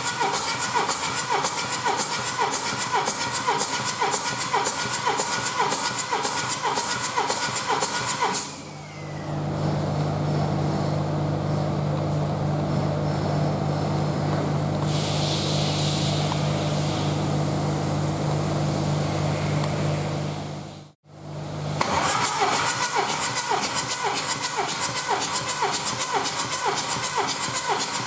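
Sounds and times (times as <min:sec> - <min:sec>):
bright hiss: 0:14.8 - 0:17.8.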